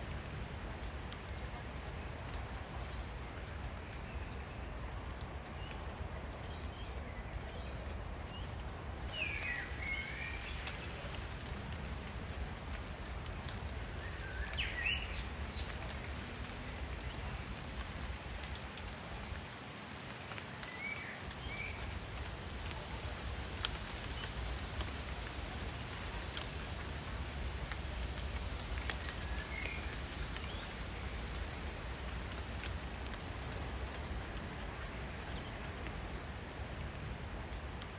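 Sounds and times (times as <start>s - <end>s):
low outdoor rumble: 0.0s - 37.9s
raindrop ticks: 0.0s - 37.9s
steady rain falling: 0.0s - 37.9s
birds chirping: 6.6s - 11.5s.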